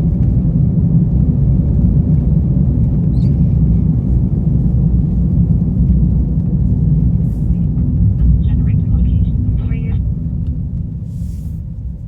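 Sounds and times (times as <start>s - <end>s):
vehicle road and engine rumble: 0.0s - 12.0s.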